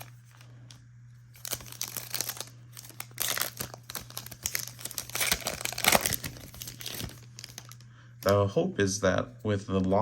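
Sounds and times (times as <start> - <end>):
plastic wrapper tearing and crinkling: 0.0 - 0.5, 1.3 - 8.4.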